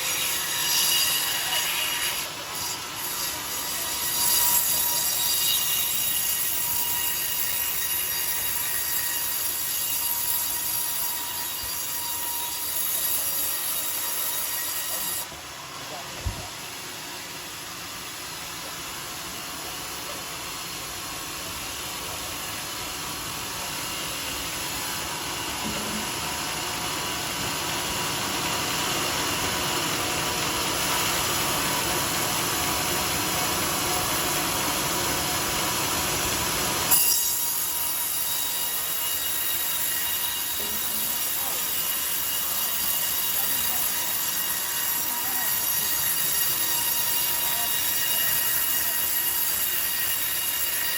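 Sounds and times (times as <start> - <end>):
circular saw cutting log: 0.0 - 50.9.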